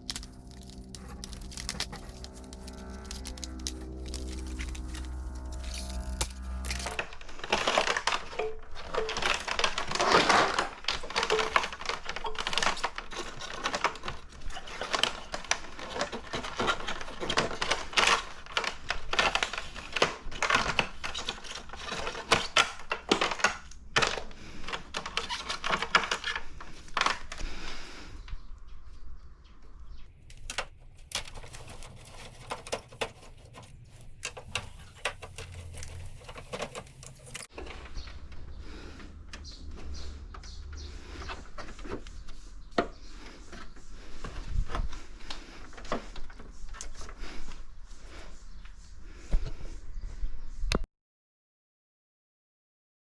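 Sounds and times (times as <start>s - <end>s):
plastic parts clicking: 0.0s - 14.2s, 30.3s - 37.5s.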